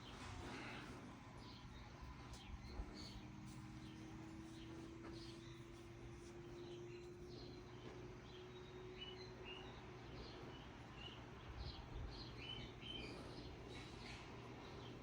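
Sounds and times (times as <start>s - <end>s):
ceiling fan hum: 0.0s - 15.0s.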